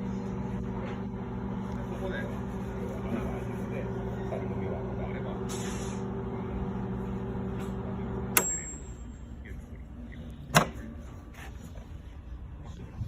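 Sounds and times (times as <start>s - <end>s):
microwave oven humming: 0.0s - 11.5s
microwave beep: 8.2s - 9.2s.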